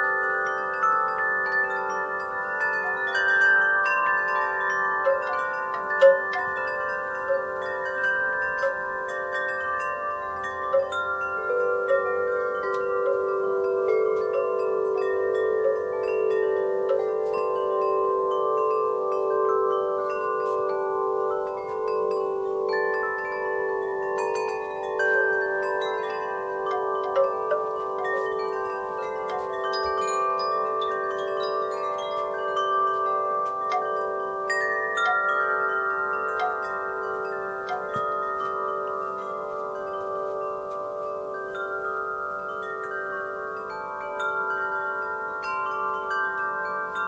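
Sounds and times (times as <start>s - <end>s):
wind chimes ringing: 0.0s - 47.0s.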